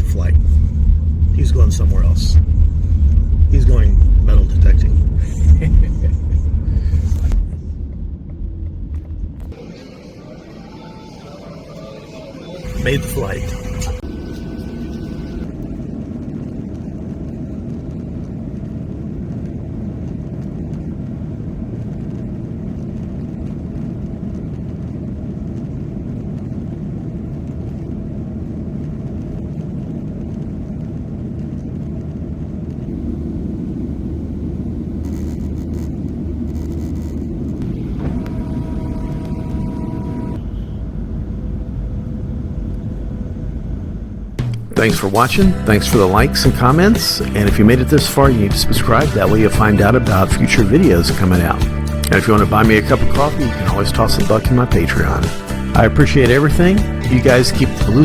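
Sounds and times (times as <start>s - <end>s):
higher steady tones: 0.0s - 17.0s, 37.4s - 58.0s
jet engine cabin rumble: 0.0s - 58.0s.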